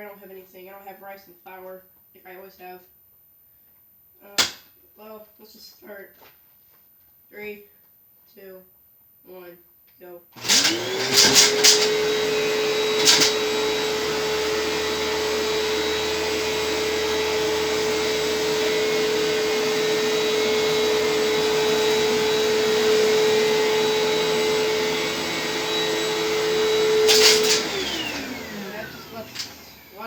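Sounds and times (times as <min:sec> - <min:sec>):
vacuum cleaner running: 0:10.4 - 0:30.0.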